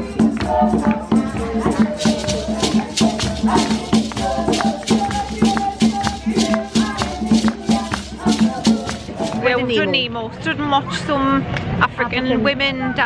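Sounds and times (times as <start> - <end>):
drum beat: 0.0 - 9.9
shakers rattling: 0.0 - 9.9
women singing together: 0.0 - 10.0.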